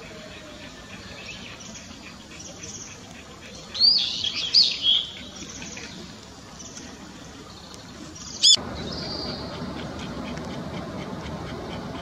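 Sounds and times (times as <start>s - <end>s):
outdoor background noise: 0.0s - 12.0s
bird high-pitched call: 8.3s - 9.4s.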